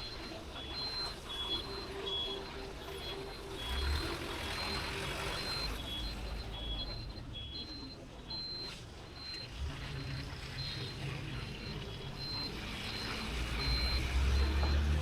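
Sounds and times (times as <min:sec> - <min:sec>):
city street traffic: 0:00.0 - 0:15.0
low engine rumbles: 0:00.0 - 0:15.0
two-tone electronic beeps: 0:00.0 - 0:15.0.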